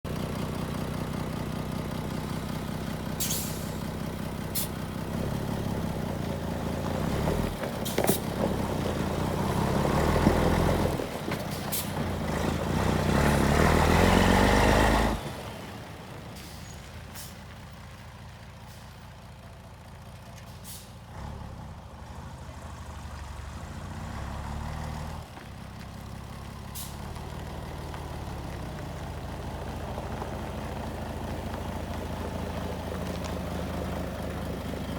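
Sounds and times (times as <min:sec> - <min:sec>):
truck diesel engine revving: 0:00.2 - 0:17.7, 0:20.6 - 0:25.4.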